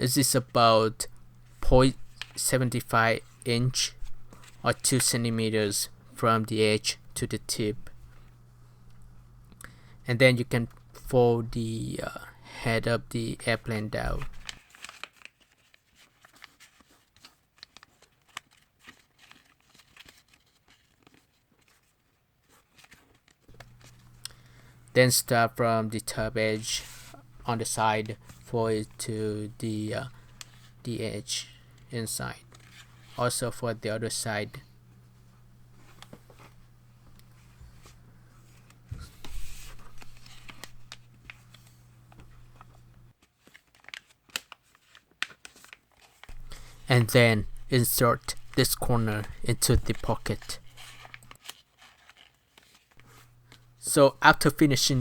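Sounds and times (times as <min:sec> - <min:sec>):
paper being folded and creased: 0:14.1 - 0:24.2, 0:26.1 - 0:28.5, 0:32.5 - 0:33.4, 0:37.2 - 0:53.6.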